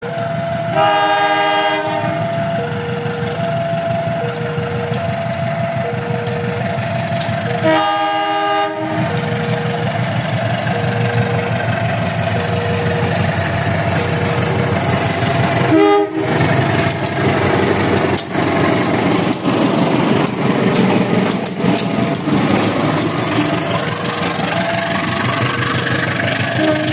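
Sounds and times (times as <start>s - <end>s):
locomotive horn blasts: 0.0s - 5.0s, 5.9s - 10.0s, 15.6s - 17.0s, 26.4s - 26.9s
train rumbling: 0.0s - 26.9s.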